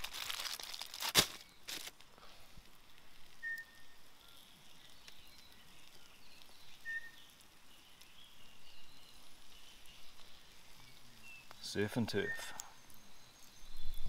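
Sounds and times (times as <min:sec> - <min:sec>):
distant bird calls: 0:03.4 - 0:14.0.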